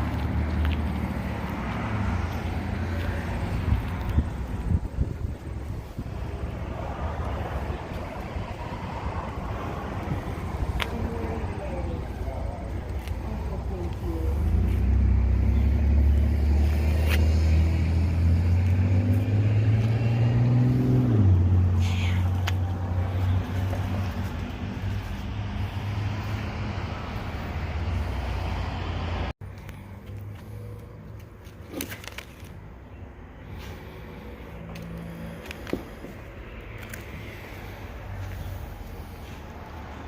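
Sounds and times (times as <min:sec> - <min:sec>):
car engine accelerating: 0:00.0 - 0:29.4
road noise: 0:00.0 - 0:40.0.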